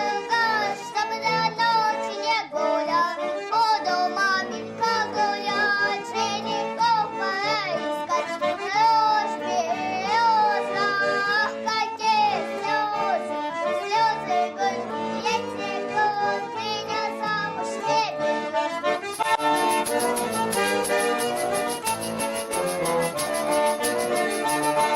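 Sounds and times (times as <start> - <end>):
high child-like voice singing: 0.0 - 18.2
accordion accompaniment: 0.0 - 24.9
brisk rhythmic accompaniment: 18.5 - 24.9.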